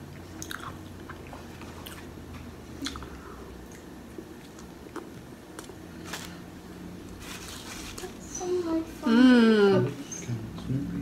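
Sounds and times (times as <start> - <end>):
person chewing food: 0.0 - 6.4.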